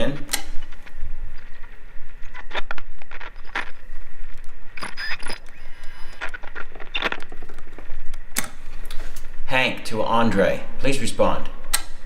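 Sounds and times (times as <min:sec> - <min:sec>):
radio low hum: 0:00.0 - 0:11.7
radio clicks and crackles: 0:00.2 - 0:09.3.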